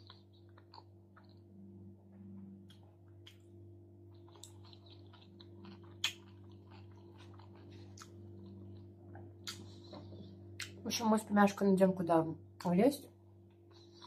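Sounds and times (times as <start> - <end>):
chewing salad: 0.0 - 1.5, 2.6 - 10.8
faint low hum: 0.0 - 14.0
wet mouth clicks: 4.1 - 9.7
small crunches: 4.1 - 9.9.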